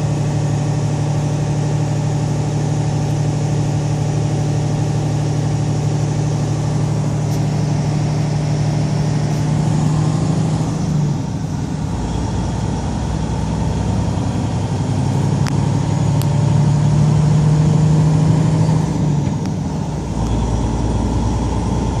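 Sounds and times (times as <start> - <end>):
truck engine droning: 0.0 - 22.0.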